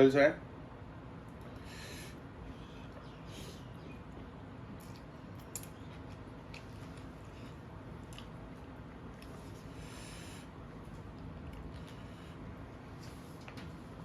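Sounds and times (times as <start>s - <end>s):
steady low hum: 0.0s - 14.0s
chewing noodles: 4.2s - 9.8s.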